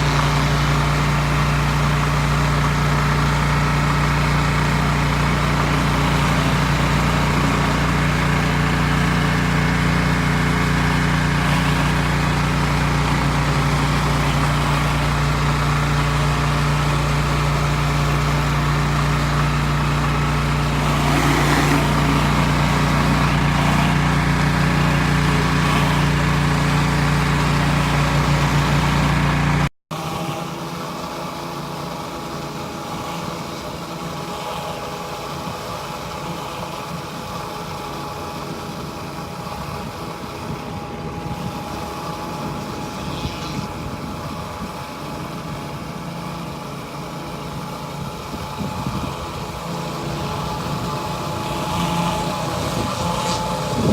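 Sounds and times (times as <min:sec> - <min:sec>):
pressure washer engine droning: 0:00.0 - 0:53.9.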